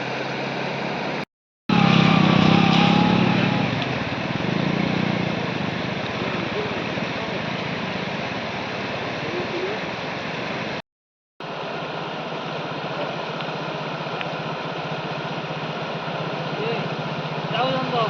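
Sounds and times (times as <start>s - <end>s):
vehicle engine running: 0.0s - 10.8s, 11.4s - 18.0s
steady rushing noise: 11.4s - 18.0s.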